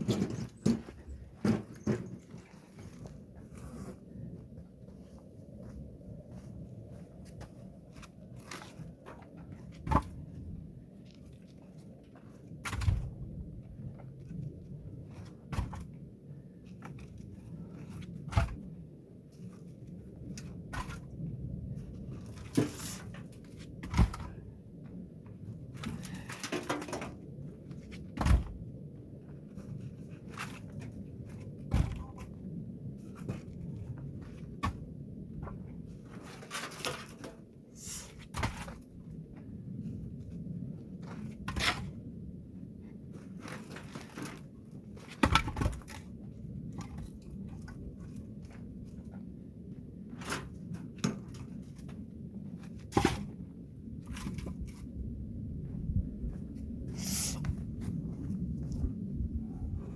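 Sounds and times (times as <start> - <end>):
logs knocking and thudding: 0.0 - 3.0, 8.5 - 10.4, 12.6 - 13.3, 15.2 - 16.0, 22.4 - 24.4, 28.0 - 28.6, 31.6 - 32.4, 45.0 - 46.1.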